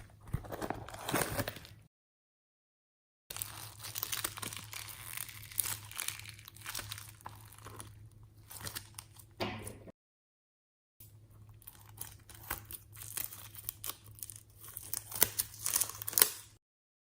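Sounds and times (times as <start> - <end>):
packaging crinkling and tearing: 3.3 - 9.3, 11.6 - 16.6.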